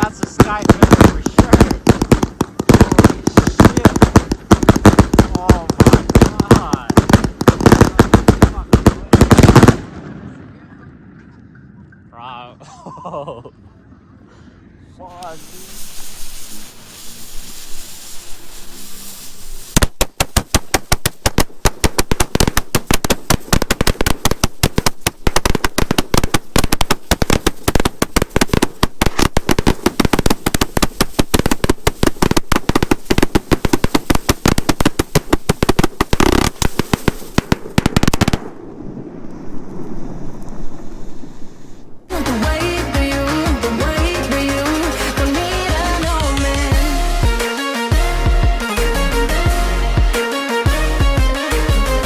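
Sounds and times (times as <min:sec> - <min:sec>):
fireworks hiss: 0:00.0 - 0:09.8, 0:15.0 - 0:38.6
fireworks rattle of sharp pops: 0:00.0 - 0:10.2, 0:15.1 - 0:40.9.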